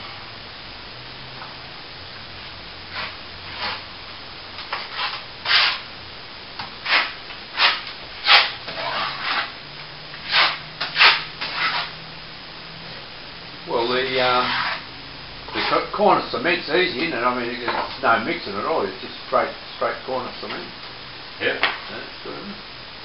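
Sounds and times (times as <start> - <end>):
plastering tool scraping plaster: 2.9 - 3.9, 4.6 - 5.8, 6.8 - 9.6, 10.2 - 11.9, 14.3 - 14.8, 15.5 - 15.9.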